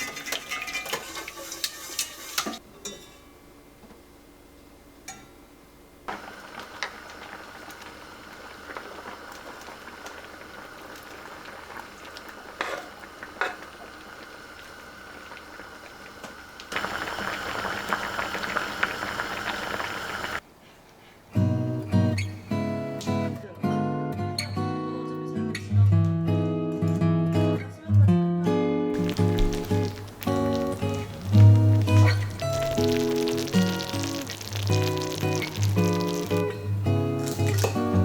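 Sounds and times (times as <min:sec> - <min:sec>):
food sizzling in a pan: 0:01.0 - 0:02.6, 0:06.1 - 0:20.4, 0:29.0 - 0:38.0
strummed acoustic guitar music: 0:34.7 - 0:38.0.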